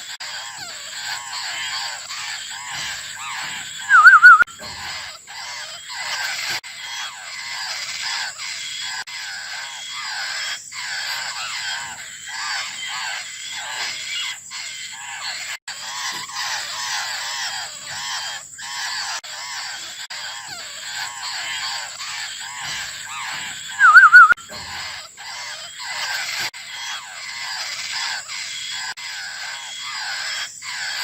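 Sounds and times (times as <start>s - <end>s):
young birds begging calls: 0.0s - 31.0s.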